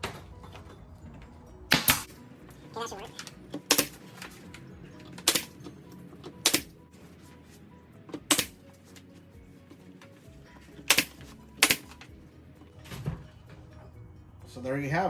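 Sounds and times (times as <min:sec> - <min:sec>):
staple gun snaps: 0:06.4 - 0:06.7, 0:08.3 - 0:08.6, 0:10.9 - 0:12.0.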